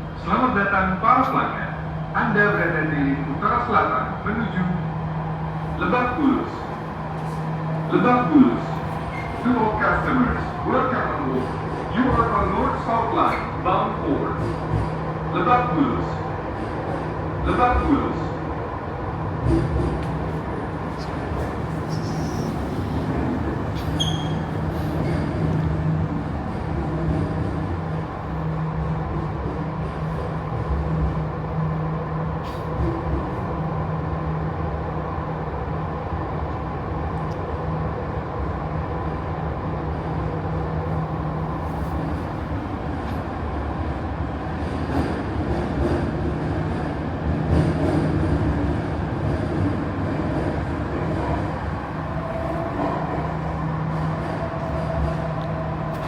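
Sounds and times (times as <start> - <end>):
train wheels rumbling on rails: 1.2 - 56.0
train motor hum: 19.1 - 31.7.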